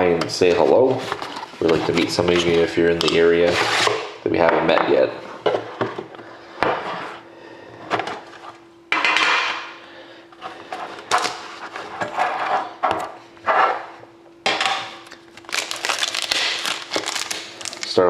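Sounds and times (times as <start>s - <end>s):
faint steady hum: 0.0s - 18.0s
packaging rustling: 0.9s - 3.9s, 15.0s - 18.0s.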